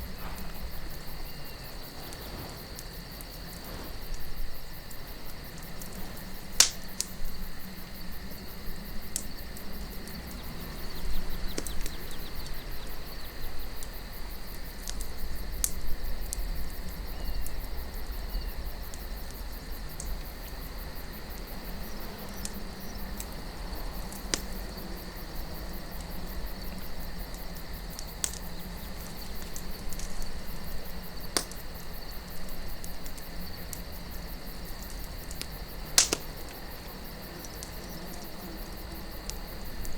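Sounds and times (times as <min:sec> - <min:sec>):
campfire crackling: 0:00.0 - 0:39.9
sharp pops of burning wood: 0:00.0 - 0:39.9
soft wind: 0:00.0 - 0:39.9.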